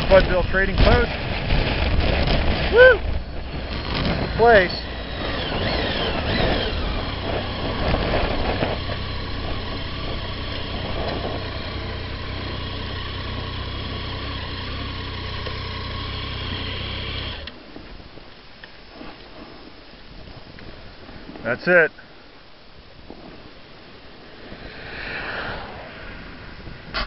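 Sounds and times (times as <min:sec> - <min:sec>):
motorcycle engine idling: 0:04.4 - 0:17.4.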